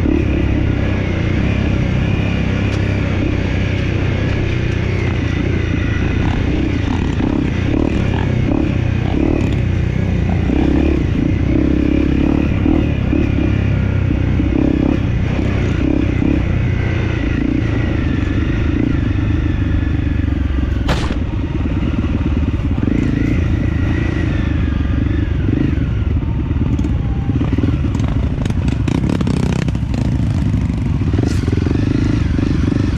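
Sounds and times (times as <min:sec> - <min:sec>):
dirt bike engine running: 0:00.0 - 0:32.9
sharp knock: 0:20.8 - 0:21.3.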